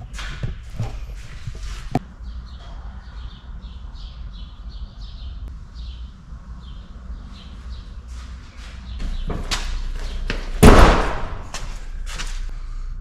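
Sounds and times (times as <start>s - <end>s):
bird chirping: 2.1s - 8.1s.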